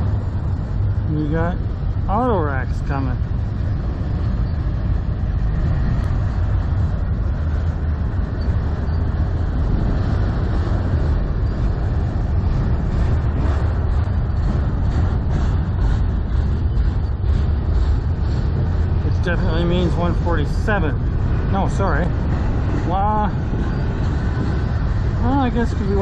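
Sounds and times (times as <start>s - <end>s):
freight train wheels rumbling: 0.0s - 26.0s
wind buffeting microphone: 0.0s - 26.0s.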